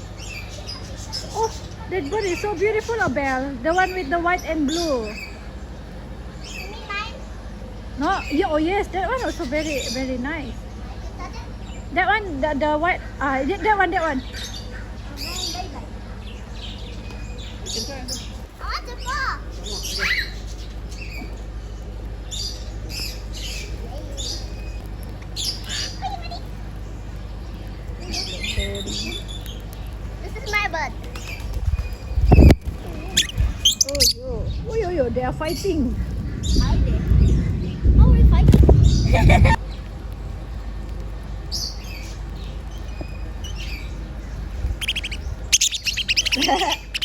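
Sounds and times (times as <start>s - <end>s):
birds squawking: 0.0s - 47.0s.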